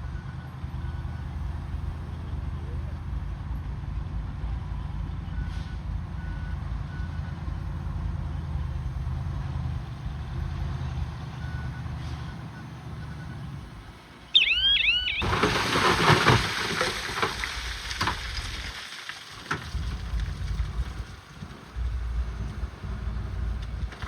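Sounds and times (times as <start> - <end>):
heavy diesel machine rumbling: 0.0 - 18.1, 19.6 - 24.0
reverse alarm beeps: 14.3 - 16.0
high squealing chirps: 14.3 - 17.0.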